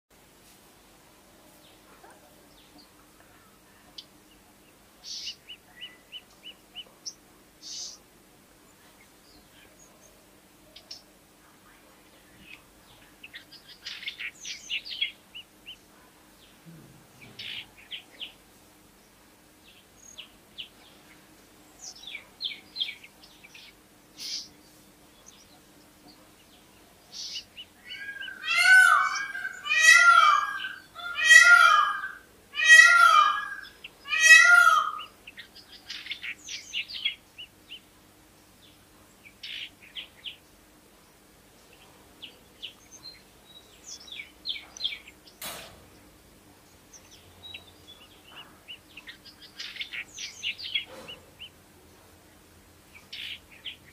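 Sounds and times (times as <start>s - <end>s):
birds chirping: 1.5s - 53.9s
loud rising and falling bird calls: 27.2s - 37.2s.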